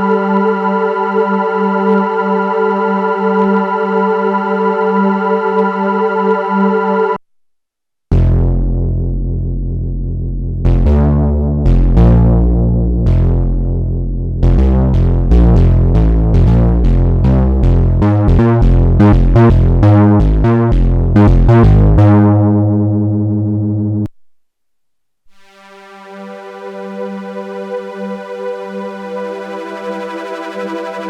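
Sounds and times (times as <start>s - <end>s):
synthesizer plucked notes: 14.4s - 24.1s, 25.4s - 31.0s
soft synthesizer pad: 25.6s - 31.0s.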